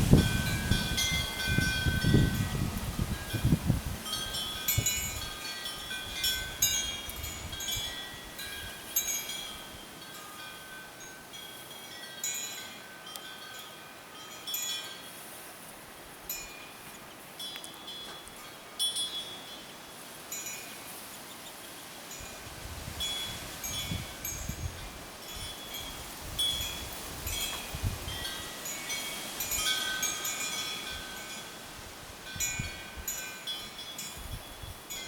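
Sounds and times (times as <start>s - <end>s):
wind buffeting microphone: 0.0s - 8.8s, 22.2s - 33.2s, 34.1s - 35.0s
metal wind chimes tinkling: 0.0s - 15.5s, 16.2s - 35.0s.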